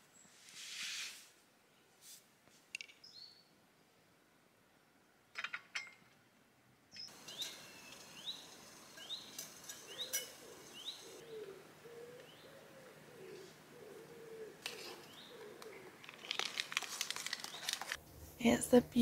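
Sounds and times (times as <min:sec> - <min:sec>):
pigeon cooing: 0:09.7 - 0:16.5.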